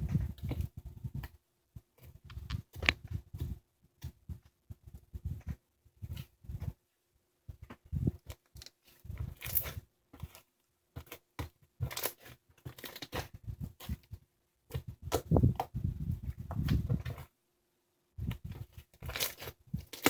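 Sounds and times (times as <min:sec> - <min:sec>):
sherbet crunching and crinkling: 0:08.1 - 0:17.3, 0:18.2 - 0:20.0.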